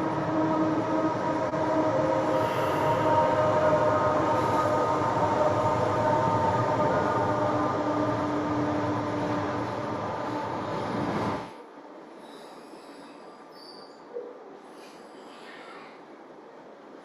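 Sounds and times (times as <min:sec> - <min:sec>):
train cars rumbling and rattling: 0:00.0 - 0:17.0
train wheels squealing: 0:12.2 - 0:14.1.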